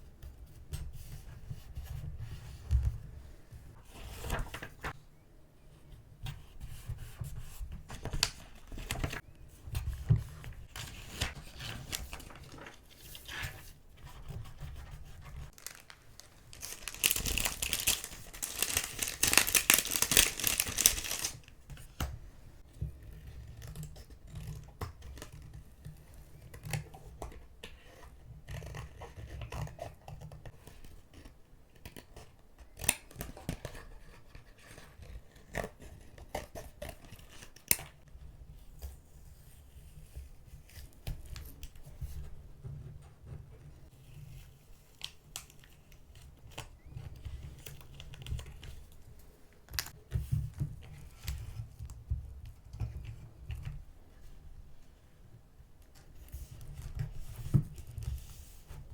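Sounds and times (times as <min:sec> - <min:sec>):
paper rustling and tapping: 0:07.2 - 0:22.1
paper tearing: 0:15.5 - 0:21.4.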